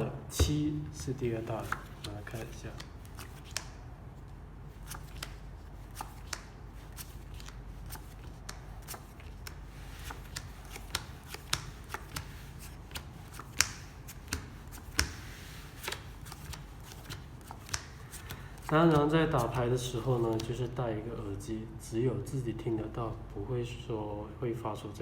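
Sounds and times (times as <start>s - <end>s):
playing cards snapping and clicking: 1.6s - 3.8s, 4.8s - 19.0s.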